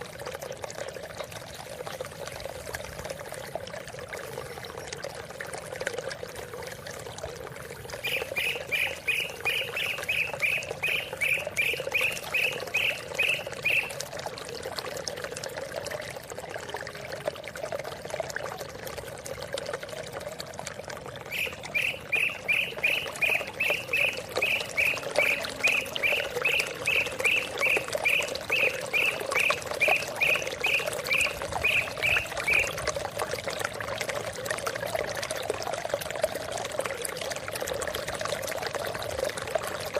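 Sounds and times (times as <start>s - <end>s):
running water: 0.0s - 39.9s
bird calling rapid repeated notes: 8.0s - 14.0s, 21.2s - 32.8s.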